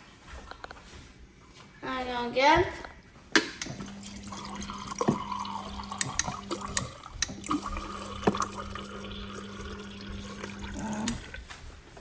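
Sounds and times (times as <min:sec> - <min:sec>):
dispenser clicks: 0:03.4 - 0:11.4
valve humming: 0:03.6 - 0:11.5
water pouring into a cup: 0:03.7 - 0:11.5
water splashes: 0:03.7 - 0:11.5.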